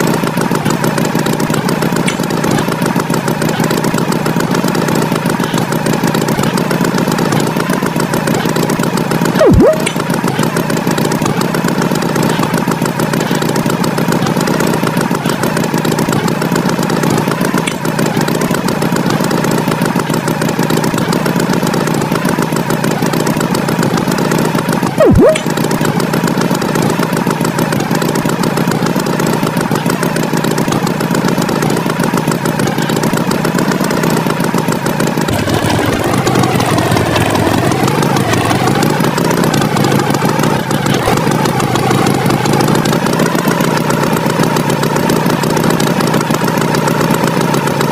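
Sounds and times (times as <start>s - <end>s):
cartoon tractor engine: 0.0s - 47.9s.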